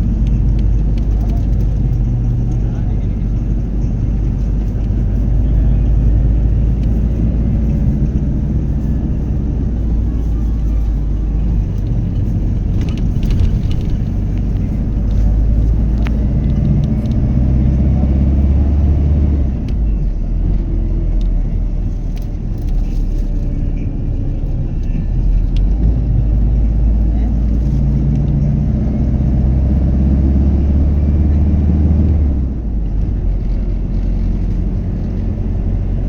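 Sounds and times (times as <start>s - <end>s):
low rumble: 0.0s - 36.0s.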